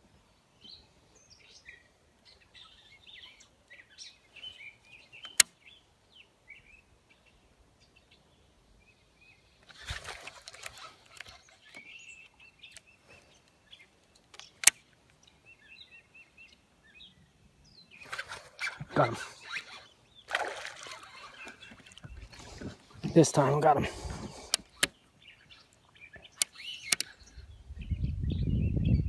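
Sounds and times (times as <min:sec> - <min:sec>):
songbirds chirping: 0:00.0 - 0:29.0
sharp loud clicks: 0:14.3 - 0:14.8, 0:26.3 - 0:27.1.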